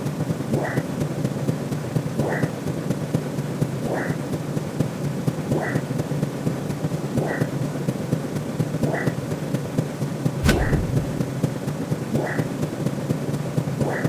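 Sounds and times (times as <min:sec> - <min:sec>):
short high blip: 0:10.4 - 0:11.3
crackling rumble: 0:10.4 - 0:11.4
sharp click with low thud: 0:10.4 - 0:11.4.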